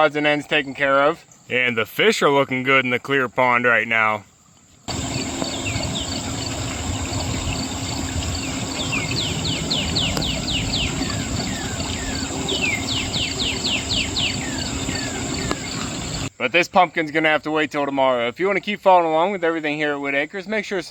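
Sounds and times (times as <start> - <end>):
bird chirping: 4.9 - 16.3
low steady rumble: 4.9 - 16.3
crickets droning: 4.9 - 18.4.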